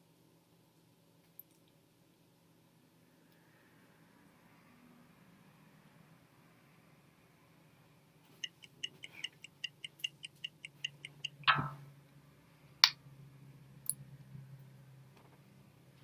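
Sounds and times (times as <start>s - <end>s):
rapid pitched ticks: 8.3s - 11.5s.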